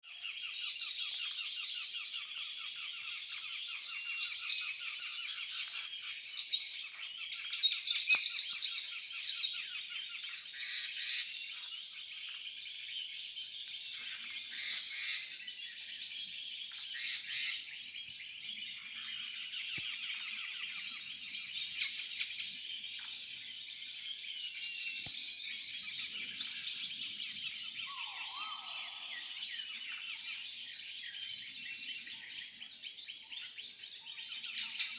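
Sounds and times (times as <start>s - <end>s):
forest birds chirping: 0.0s - 34.9s.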